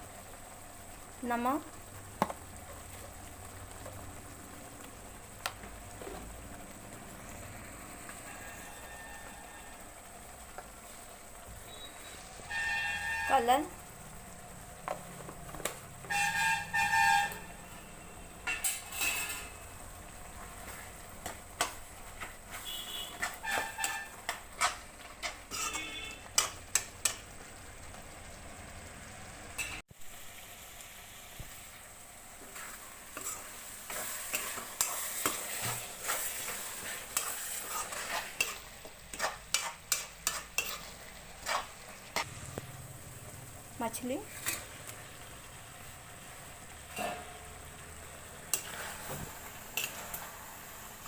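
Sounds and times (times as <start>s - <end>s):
frying sizzle: 0.0s - 51.0s
spoon scraping a pan: 11.7s - 13.5s, 16.0s - 19.7s, 20.6s - 27.2s, 32.4s - 42.3s, 44.2s - 44.9s, 46.9s - 47.5s, 48.4s - 50.8s.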